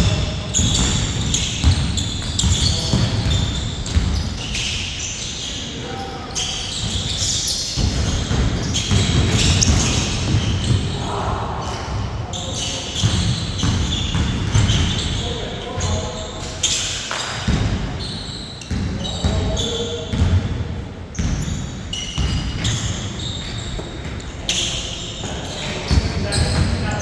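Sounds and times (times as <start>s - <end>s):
basketball bouncing on court: 0.0s - 4.6s, 6.7s - 11.0s, 13.0s - 15.2s, 17.1s - 24.2s.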